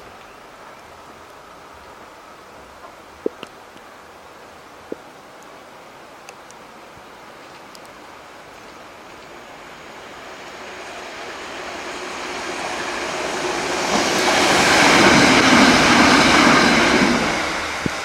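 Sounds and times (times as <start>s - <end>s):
electric train passing: 8.9s - 18.0s.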